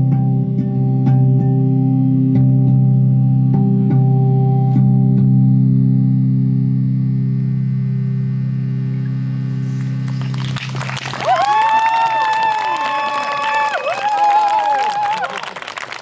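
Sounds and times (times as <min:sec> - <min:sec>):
low drone: 0:00.5 - 0:11.4.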